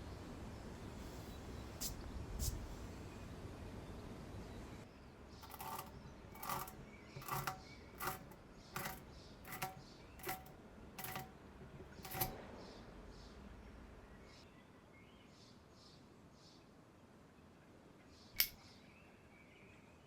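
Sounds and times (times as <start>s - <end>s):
sharp metallic clicks: 18.4s - 18.6s.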